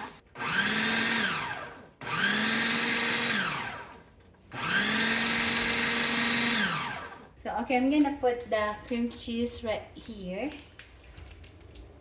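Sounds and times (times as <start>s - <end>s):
blender motor pulsing: 0.0s - 7.3s.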